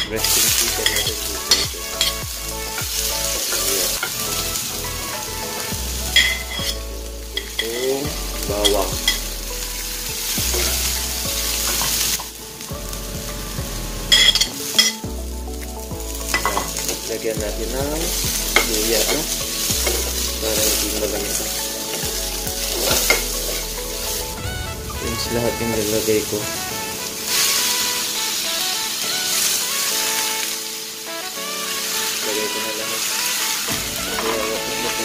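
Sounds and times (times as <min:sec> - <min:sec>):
metal ladle scraping pan: 0:00.0 - 0:12.4, 0:13.9 - 0:15.0, 0:15.6 - 0:17.3, 0:18.1 - 0:24.4
onion sizzling in hot oil: 0:00.0 - 0:35.0.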